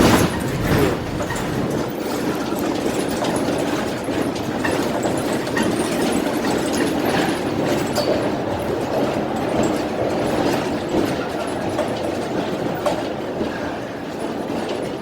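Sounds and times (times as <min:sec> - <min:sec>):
transit vehicle rumble: 0:00.0 - 0:05.4.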